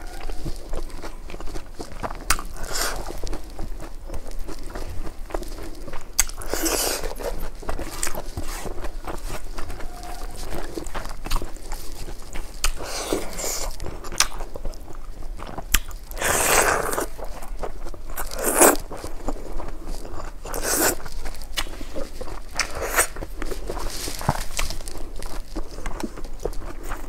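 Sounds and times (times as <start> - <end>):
chewing and crunching: 0.0 - 27.0.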